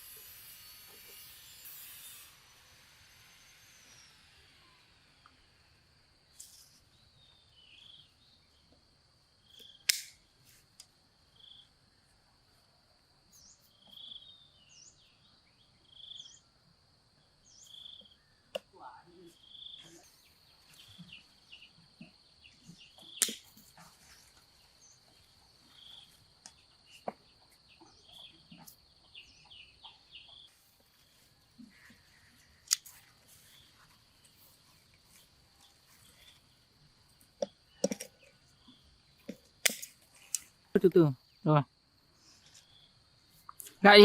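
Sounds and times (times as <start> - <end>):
high insect drone: 0.0 - 44.0.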